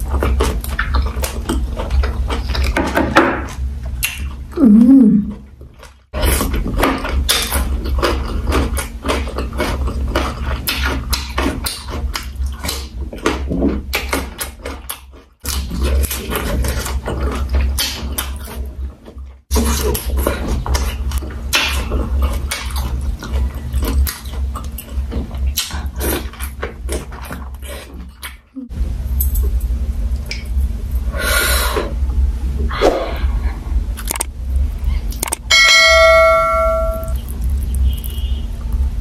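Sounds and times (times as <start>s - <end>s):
chewing and mouth smacks: 0.0s - 2.8s, 3.5s - 4.6s, 5.3s - 28.5s, 34.0s - 34.3s, 35.0s - 35.5s, 37.0s - 38.8s
person humming: 4.6s - 5.4s
steady low hum: 19.5s - 39.0s.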